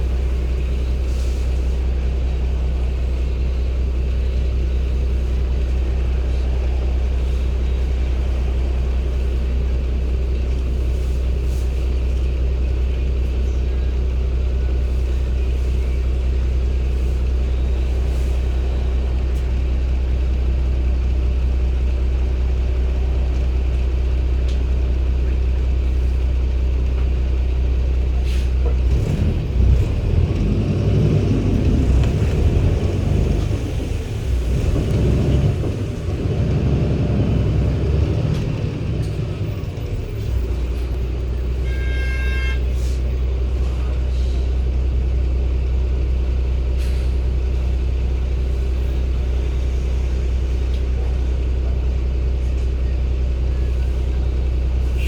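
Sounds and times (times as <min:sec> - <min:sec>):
bus diesel engine droning: 0:00.0 - 0:55.0.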